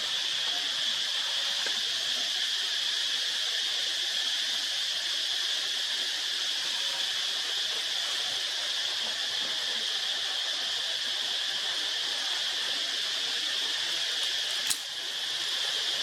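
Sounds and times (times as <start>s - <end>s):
insect chorus: 0.0s - 16.0s
sharp click: 14.5s - 14.9s.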